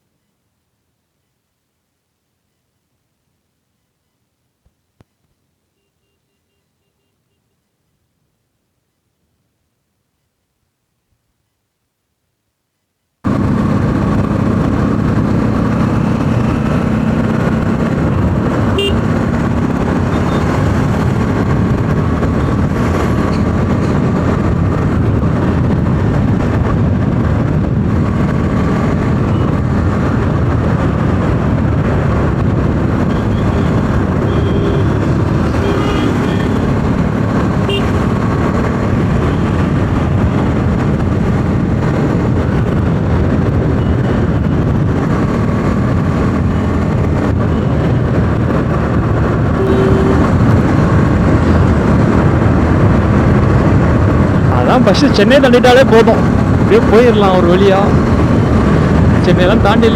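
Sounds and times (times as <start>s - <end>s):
motorcycle engine and wind rush: 13.2s - 59.9s
short horn toots: 18.7s - 19.1s, 33.2s - 36.7s, 37.6s - 38.0s, 49.6s - 50.4s.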